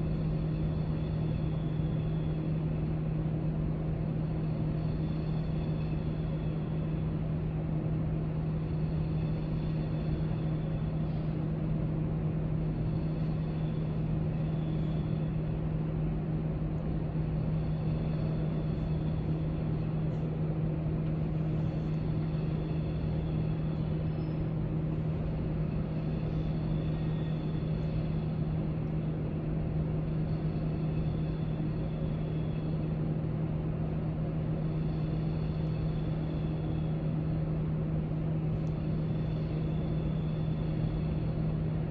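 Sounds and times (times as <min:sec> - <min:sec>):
low hum: 0:00.0 - 0:41.9.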